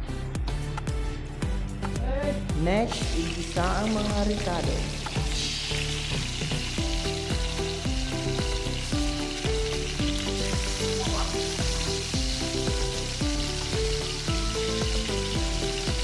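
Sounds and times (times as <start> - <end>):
background music with bass: 0.0 - 16.0
food sizzling in oil: 2.8 - 16.0.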